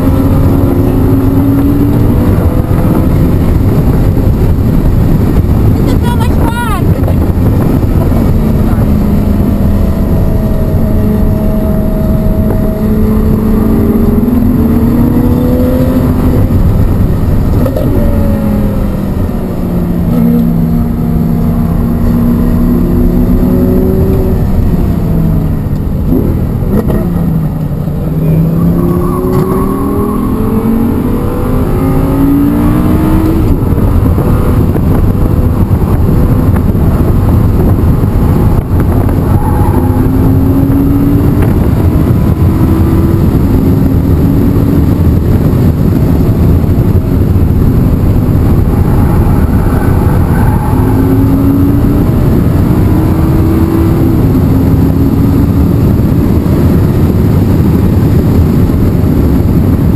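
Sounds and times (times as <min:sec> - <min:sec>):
car engine accelerating: 0:00.0 - 0:59.9
road and wind noise: 0:00.0 - 0:59.9.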